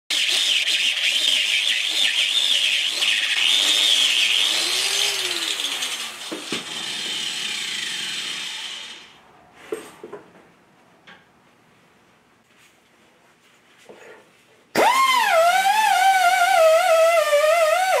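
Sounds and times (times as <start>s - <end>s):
power tool whining: 0.1s - 9.2s, 14.8s - 18.0s.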